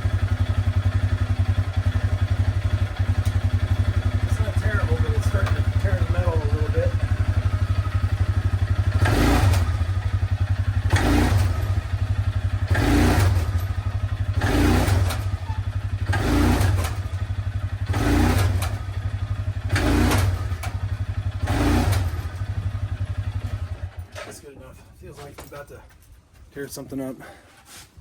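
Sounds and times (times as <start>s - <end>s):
low engine-like rumble: 0.0s - 9.0s.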